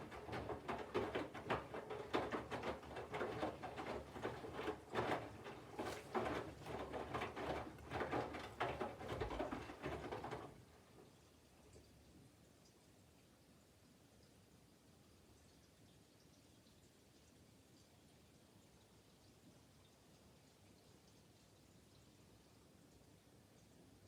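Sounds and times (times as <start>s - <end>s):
washing machine drum tumbling laundry: 0.0s - 10.8s.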